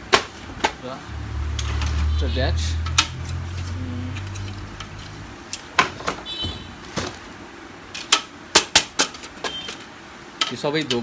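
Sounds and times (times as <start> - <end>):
low steady hum: 0.3 - 7.5
printer parts clicking and knocking: 8.0 - 11.0.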